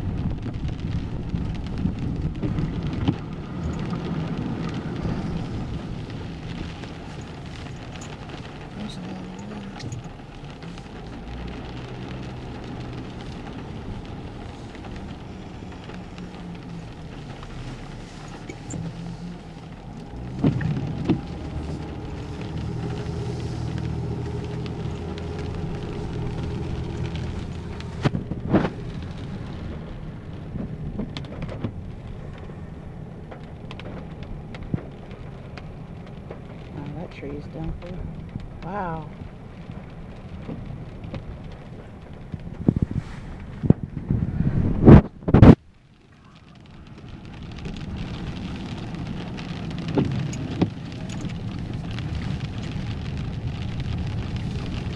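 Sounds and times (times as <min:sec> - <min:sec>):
vehicle engine running: 0:00.0 - 0:30.5
road noise: 0:00.0 - 0:54.9.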